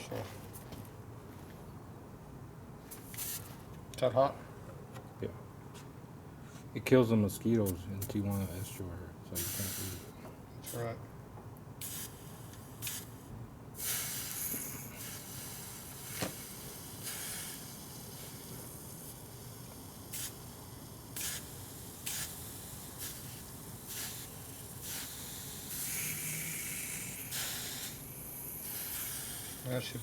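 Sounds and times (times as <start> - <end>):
faint steady hiss: 6.4 - 30.0
hissing bursts: 9.4 - 10.8, 11.8 - 30.0.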